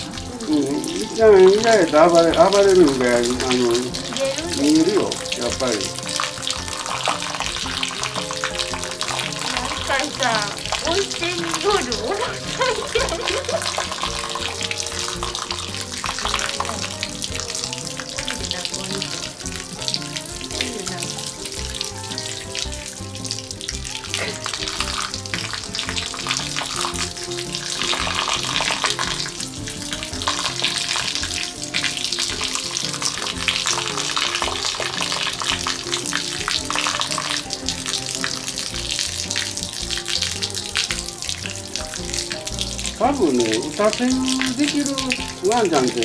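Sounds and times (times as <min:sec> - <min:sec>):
background music: 0:00.0 - 0:46.0
water cascade splashing: 0:00.0 - 0:46.0.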